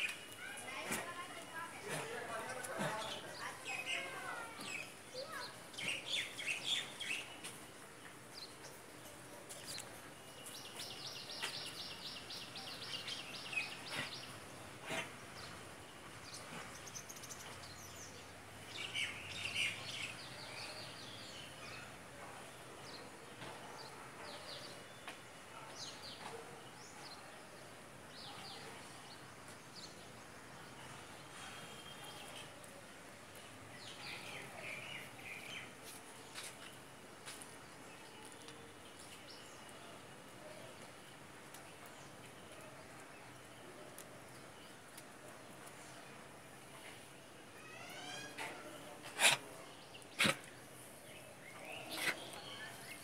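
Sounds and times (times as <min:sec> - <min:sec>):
birds chirping: 0:43.4 - 0:53.0.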